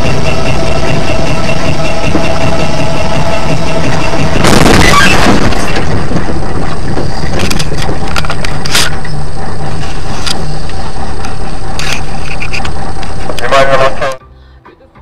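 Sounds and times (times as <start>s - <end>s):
car engine and road noise: 0.0s - 14.2s
loud burst of noise: 0.0s - 14.2s.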